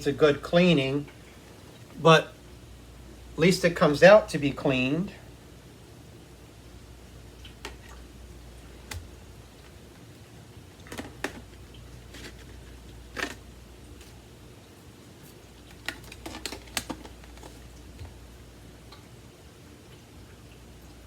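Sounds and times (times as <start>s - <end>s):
plastic vacuum parts clicking: 12.1s - 13.4s, 15.7s - 17.6s.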